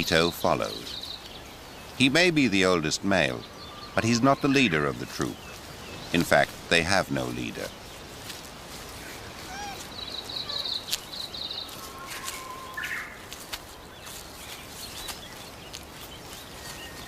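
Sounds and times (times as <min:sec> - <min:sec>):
small birds chirping: 0:00.0 - 0:17.0
steady hiss: 0:00.0 - 0:17.0
light clicks and rustles: 0:13.2 - 0:17.0.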